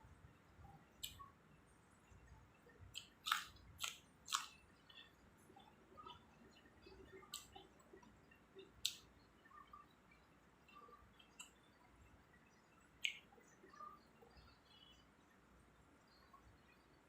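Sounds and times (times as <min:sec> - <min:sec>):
sharp snaps: 0:01.0 - 0:01.3, 0:02.9 - 0:05.0, 0:08.8 - 0:09.1, 0:13.0 - 0:13.3
wet mouth clicks and smacks: 0:01.0 - 0:01.3, 0:02.9 - 0:05.1, 0:06.0 - 0:09.1, 0:13.0 - 0:13.3
person chewing food: 0:02.2 - 0:09.1.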